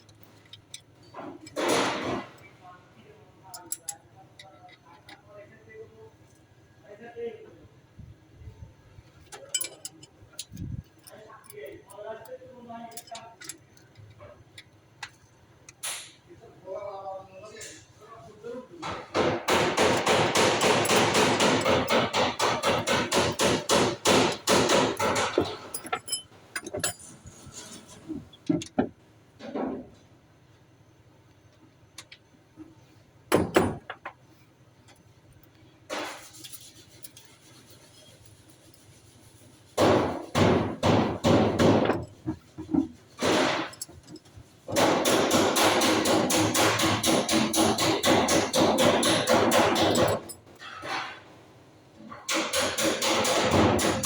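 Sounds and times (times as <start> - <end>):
rapid hammer blows: 18.9 - 25.6.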